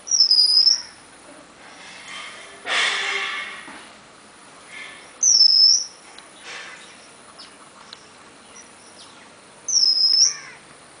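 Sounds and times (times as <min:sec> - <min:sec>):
faint bird chirps: 0:00.0 - 0:01.0, 0:04.8 - 0:10.7
bird whistling: 0:00.1 - 0:01.0, 0:05.2 - 0:06.0, 0:09.7 - 0:10.6.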